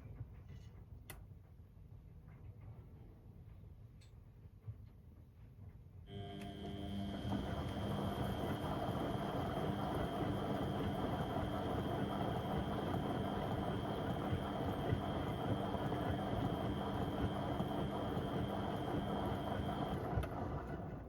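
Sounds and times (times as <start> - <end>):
thin high motor whine: 6.1 - 20.1
washing machine running: 6.1 - 21.0.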